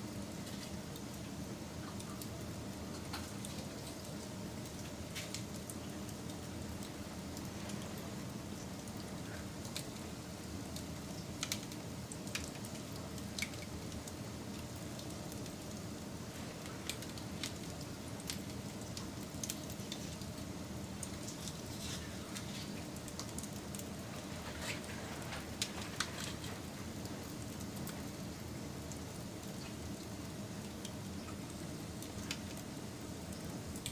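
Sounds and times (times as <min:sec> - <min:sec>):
low rush of burning campfire: 0:00.0 - 0:33.9
campfire crackling and popping: 0:01.9 - 0:33.9.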